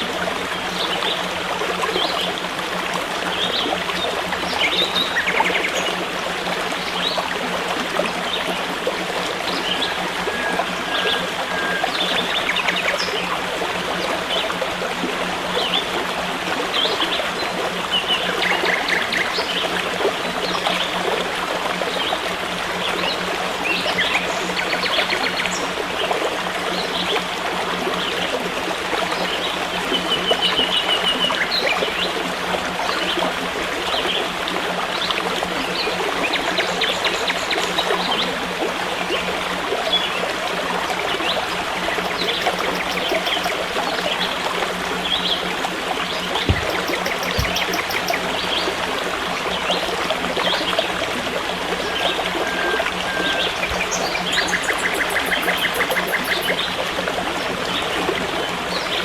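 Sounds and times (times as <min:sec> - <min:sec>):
forest stream trickling: 0:00.0 - 0:59.0
bird chirps: 0:42.0 - 0:43.6, 0:46.4 - 0:48.3, 0:52.4 - 0:56.6
bird trill: 0:42.0 - 0:43.6, 0:46.5 - 0:48.3, 0:52.4 - 0:56.6.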